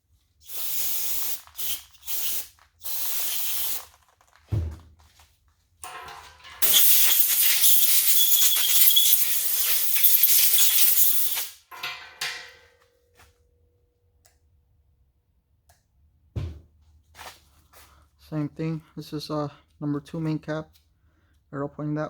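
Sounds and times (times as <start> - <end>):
pressurised spray hissing: 0.4 - 3.9, 6.6 - 11.6.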